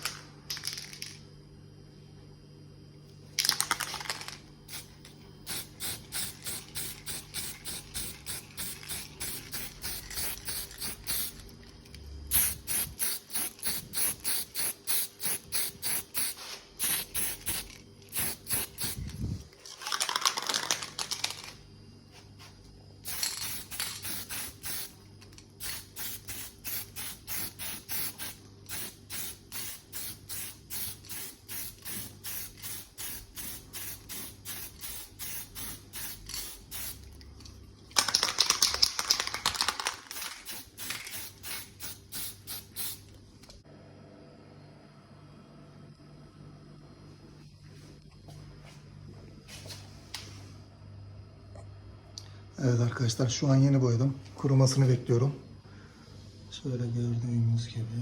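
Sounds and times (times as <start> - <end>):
spray paint can hissing: 5.5 - 11.5, 12.3 - 19.2, 23.0 - 25.0, 25.6 - 37.0, 38.0 - 43.0.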